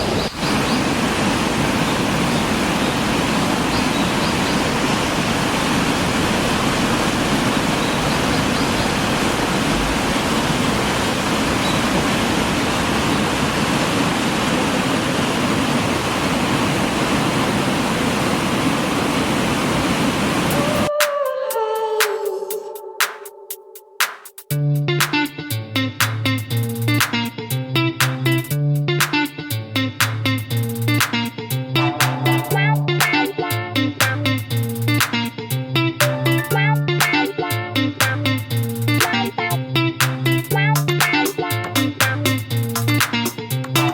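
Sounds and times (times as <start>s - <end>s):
river water over rocks: 0.1s - 20.5s.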